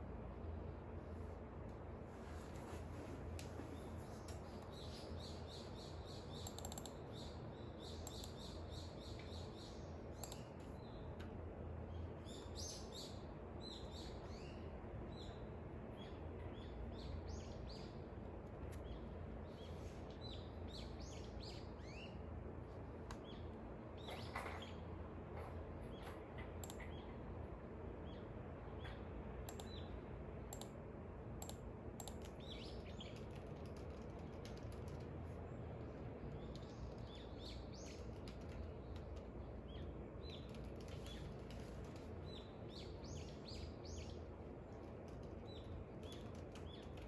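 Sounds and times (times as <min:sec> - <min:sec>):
small birds chirping: 0:03.6 - 0:11.2, 0:11.8 - 0:22.3, 0:28.0 - 0:30.8, 0:31.4 - 0:47.0.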